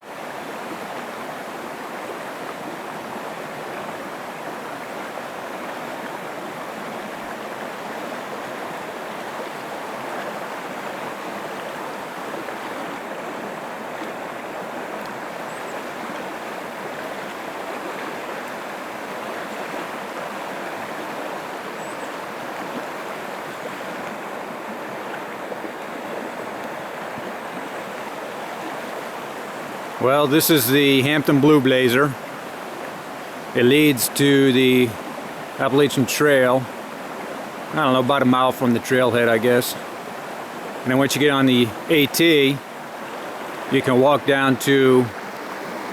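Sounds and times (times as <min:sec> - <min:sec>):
creek water rushing: 0:00.0 - 0:45.9.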